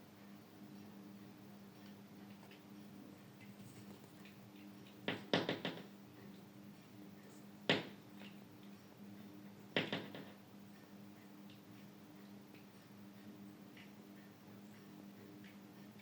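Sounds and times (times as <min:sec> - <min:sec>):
bird tapping at window: 0:05.0 - 0:05.9, 0:09.8 - 0:10.4.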